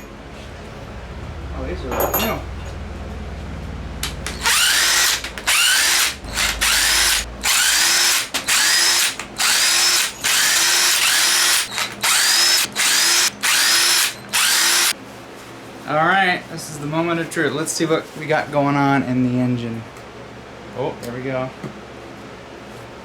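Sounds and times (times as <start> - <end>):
cordless power tool whining: 4.0 - 15.0.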